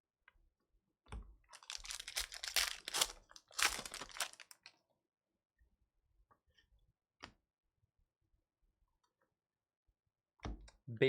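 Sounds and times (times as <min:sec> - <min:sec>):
plastic wrapper crinkling and tearing: 0:01.5 - 0:04.7.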